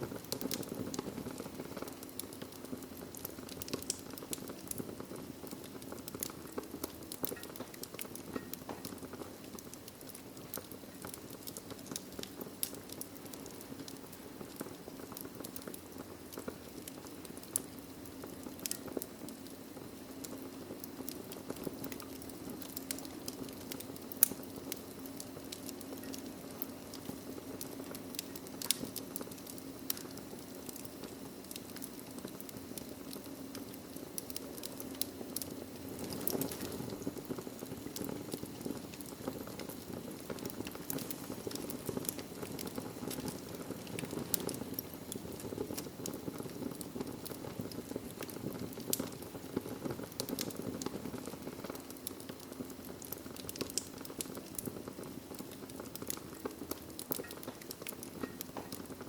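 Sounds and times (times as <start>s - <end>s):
low rush of burning: 0.0s - 59.0s
wood fire crackling: 0.0s - 59.0s
sharp pops and snaps: 0.2s - 59.0s.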